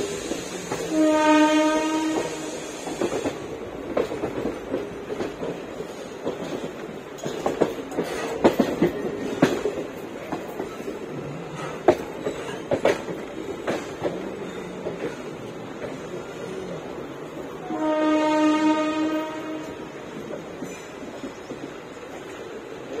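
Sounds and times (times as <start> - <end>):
train wheels clacking on rail joints: 0.0 - 23.0
train horn blast: 0.8 - 2.6, 17.6 - 20.0.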